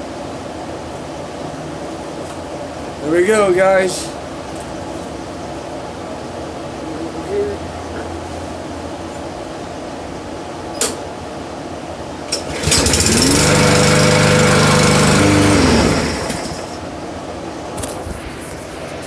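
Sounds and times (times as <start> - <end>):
lawn mower pull-start: 12.3 - 16.8
lawn mower engine running: 12.3 - 17.0.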